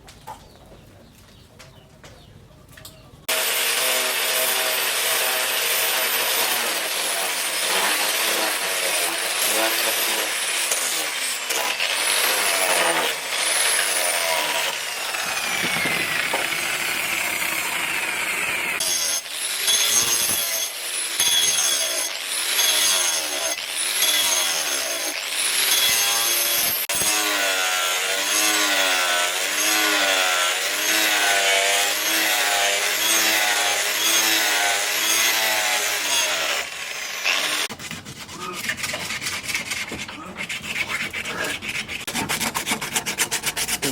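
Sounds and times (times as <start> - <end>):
tool rubbing wood: 3.3 - 27.0, 32.9 - 43.9.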